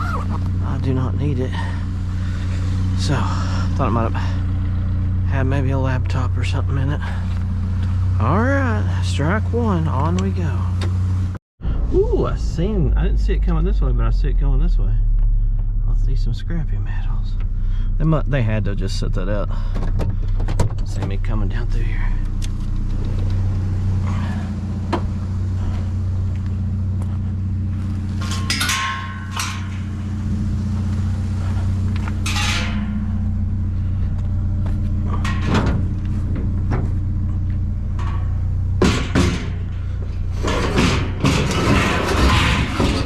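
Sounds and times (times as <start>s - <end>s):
truck engine droning: 0.0s - 43.0s
loud clatter: 35.1s - 43.0s
short rattles or knocks: 37.8s - 43.0s.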